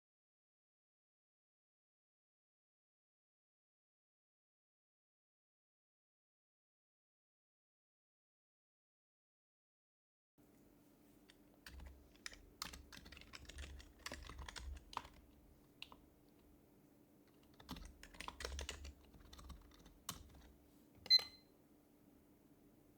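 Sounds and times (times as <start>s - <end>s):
soft keyboard typing: 11.2s - 16.4s, 17.3s - 21.4s.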